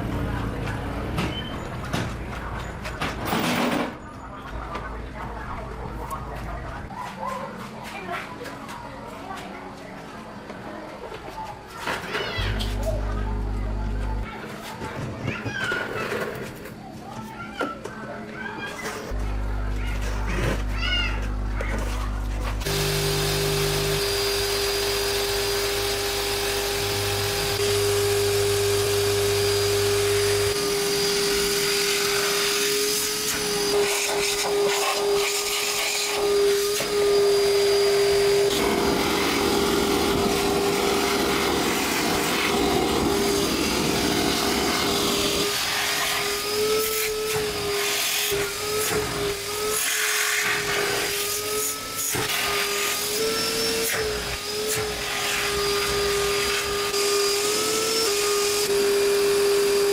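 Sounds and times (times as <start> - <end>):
power tool motor whining: 22.6 - 59.9.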